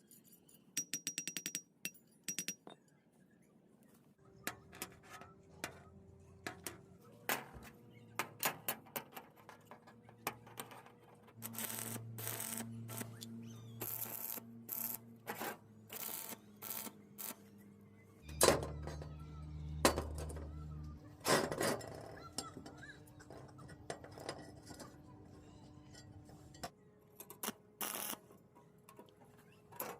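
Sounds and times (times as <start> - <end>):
crackling buzz: 11.4 - 13.2.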